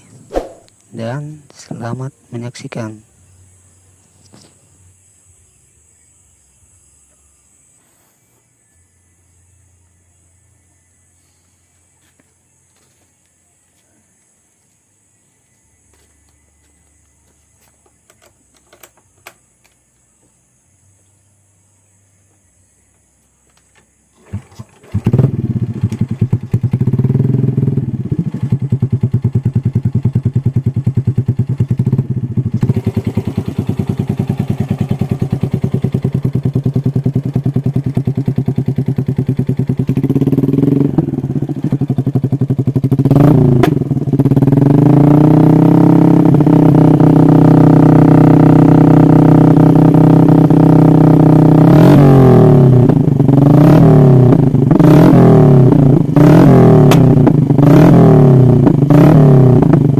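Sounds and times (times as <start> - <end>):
motorcycle engine idling and revving: 8.8 - 59.9.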